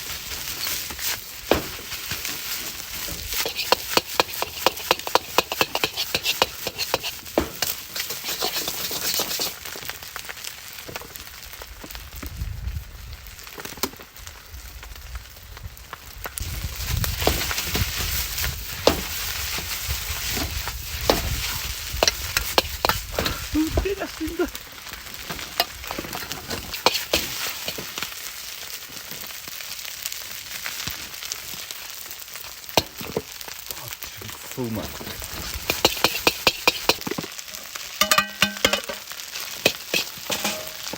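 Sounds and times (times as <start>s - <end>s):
rice sizzling in a pan: 0.0s - 40.9s
spatula scraping metal pan: 2.3s - 9.6s, 18.8s - 23.8s, 25.2s - 28.0s, 35.0s - 40.9s.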